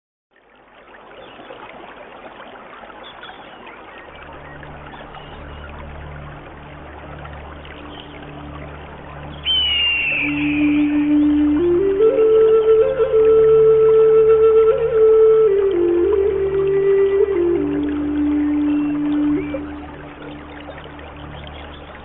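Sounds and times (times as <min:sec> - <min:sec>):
stream water trickling: 0:00.3 - 0:22.0
low music drone: 0:04.0 - 0:22.0
high music note: 0:09.4 - 0:12.0.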